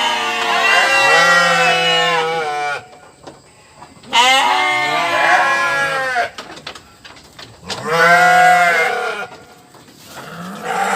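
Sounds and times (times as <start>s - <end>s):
goat bleating: 4.1s - 6.4s, 7.8s - 9.6s, 10.2s - 10.9s.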